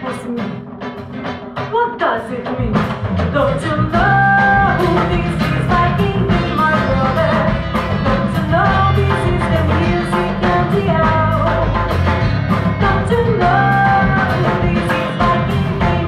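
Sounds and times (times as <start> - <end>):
woman singing: 0.0 - 0.7, 1.6 - 12.0, 12.7 - 16.0
drum beat: 0.0 - 16.0
live band music: 0.0 - 16.0
bass line: 2.4 - 16.0.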